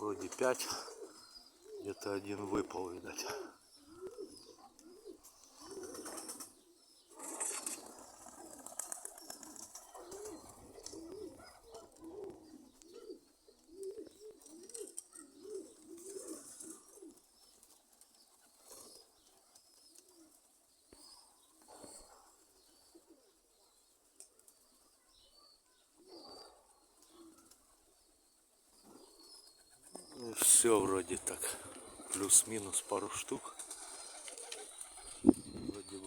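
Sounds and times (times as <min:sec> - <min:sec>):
pigeons cooing: 0:00.0 - 0:24.6, 0:25.9 - 0:28.0, 0:28.6 - 0:36.0
wings flapping: 0:05.6 - 0:06.5, 0:07.2 - 0:12.1, 0:30.4 - 0:36.0.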